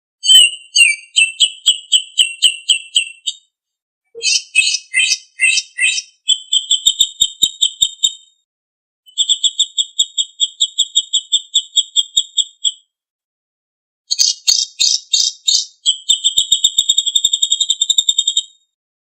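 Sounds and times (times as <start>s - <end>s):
songbird singing: 0.2s - 3.4s, 4.2s - 8.3s, 14.1s - 18.4s.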